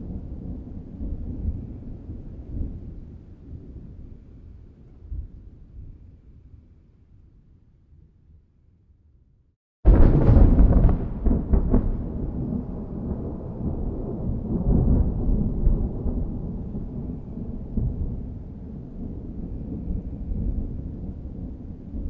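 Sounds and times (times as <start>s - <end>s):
thunder cracking and rumbling: 9.9s - 22.0s.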